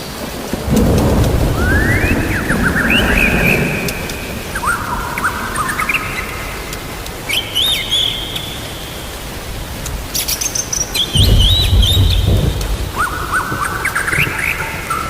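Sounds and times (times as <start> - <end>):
thunder rumbling: 0.0 - 7.3, 10.9 - 15.0
birds chirping: 0.0 - 15.0
rain hissing: 0.0 - 15.0.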